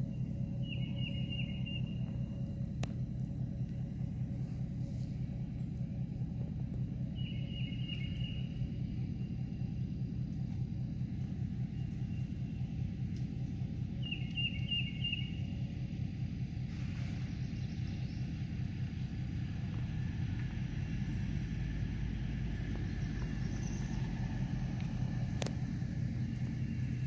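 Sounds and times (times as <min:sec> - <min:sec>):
bird chirping: 0:00.0 - 0:02.6, 0:06.9 - 0:09.8, 0:11.1 - 0:15.8, 0:17.0 - 0:18.7, 0:22.7 - 0:24.2
steady low rumble: 0:00.0 - 0:27.0.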